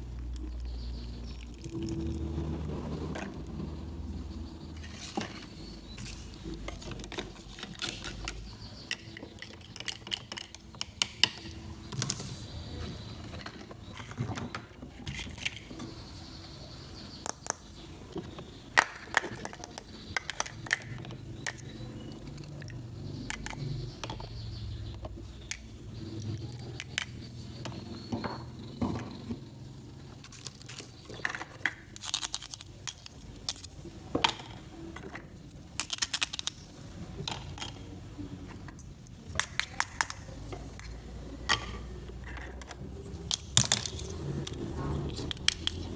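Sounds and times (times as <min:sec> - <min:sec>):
toy pieces clicking and tapping: 0:04.8 - 0:12.3, 0:17.1 - 0:28.4, 0:30.2 - 0:45.9.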